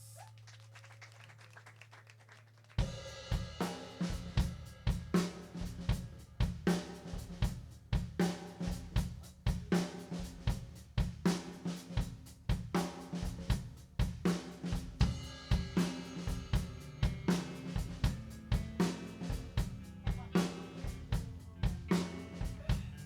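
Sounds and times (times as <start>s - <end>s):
drum kit beat: 2.8s - 23.0s
rock band playing: 15.1s - 23.0s.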